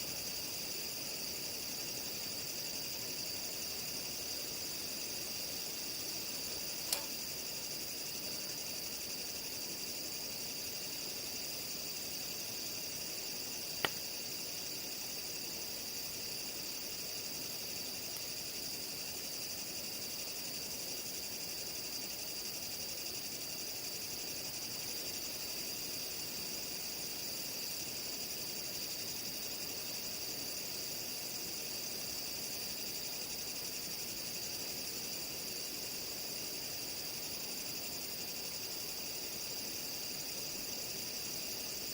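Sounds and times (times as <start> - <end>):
night insects chorus: 0.0 - 41.9
sharp click: 6.8 - 7.2.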